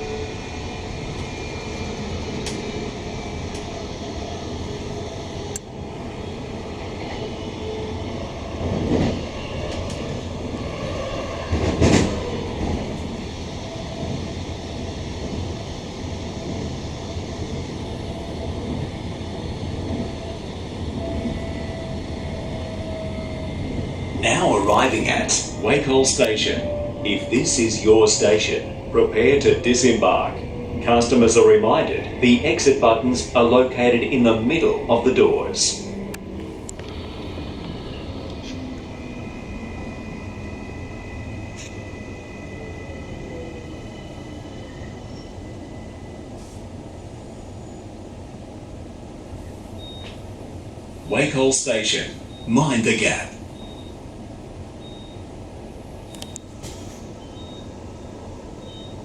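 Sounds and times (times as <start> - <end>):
train wheels rumbling on rail: 0.0 - 59.0
faint clicks: 2.4 - 2.6.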